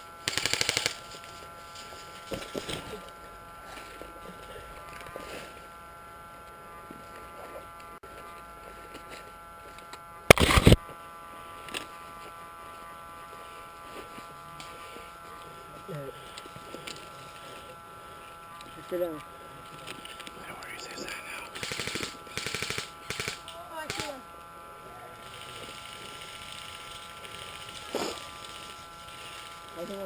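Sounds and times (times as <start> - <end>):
faint steady whine: 0.0 - 30.0
airsoft gun full-auto burst: 0.2 - 1.1, 21.6 - 24.2, 25.4 - 29.5.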